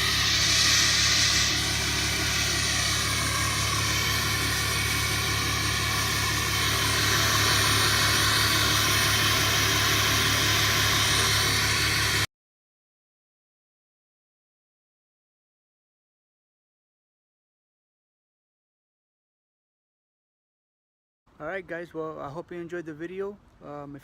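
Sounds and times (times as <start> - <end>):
diesel engine and exhaust drone: 0.0 - 12.3.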